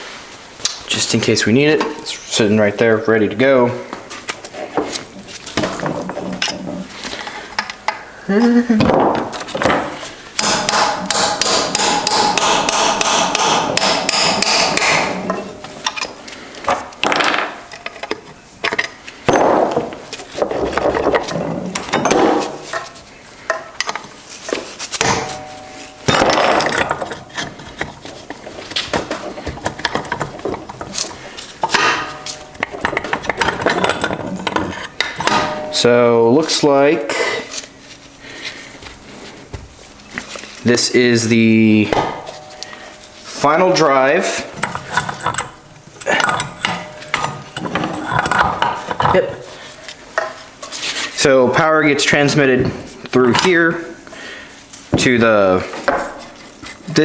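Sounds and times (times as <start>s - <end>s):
sharp metallic knocks: 10.4s - 15.4s, 25.0s - 27.1s, 41.9s - 43.0s.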